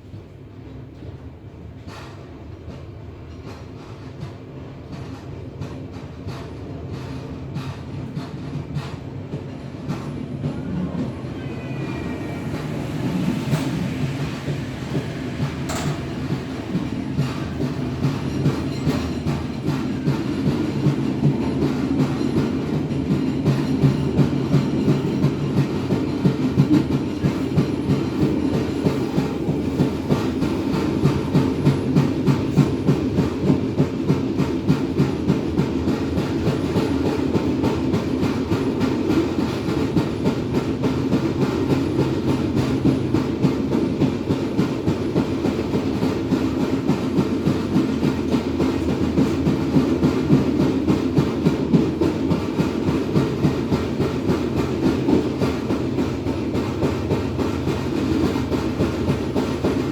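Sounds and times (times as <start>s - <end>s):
train carriages rumbling: 0.0s - 59.9s
wheels clacking over rails: 12.4s - 59.9s.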